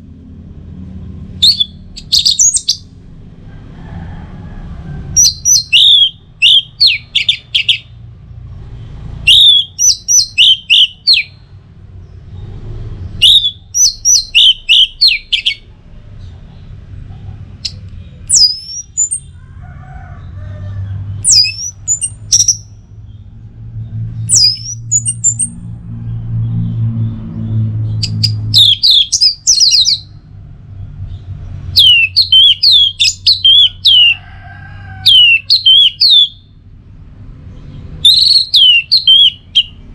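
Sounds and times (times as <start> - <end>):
thrush singing whistled notes: 1.3 - 3.0, 5.1 - 7.9, 9.2 - 11.5, 12.4 - 15.7, 17.6 - 19.4, 21.2 - 23.3, 24.2 - 25.7, 26.6 - 30.2, 31.7 - 34.2, 35.1 - 36.6, 38.0 - 39.9
low hum: 21.0 - 31.7.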